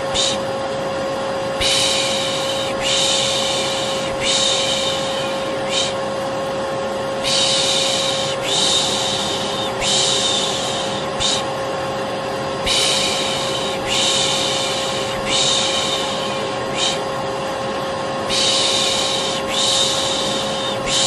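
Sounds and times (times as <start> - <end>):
person shushing: 0.0 - 0.5, 1.6 - 6.1, 7.2 - 11.5, 12.6 - 17.1, 18.3 - 21.0
vacuum cleaner running: 0.0 - 21.0.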